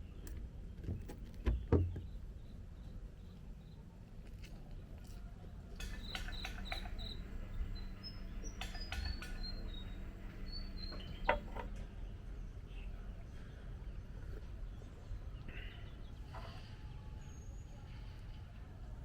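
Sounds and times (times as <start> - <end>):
small birds chirping: 0.0 - 18.6
steady low hum: 5.7 - 19.0.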